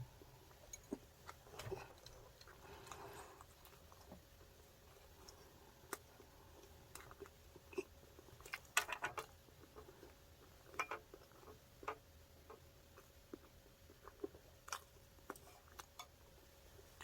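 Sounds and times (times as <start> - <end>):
crunchy crackles of chewing: 0.2 - 17.0.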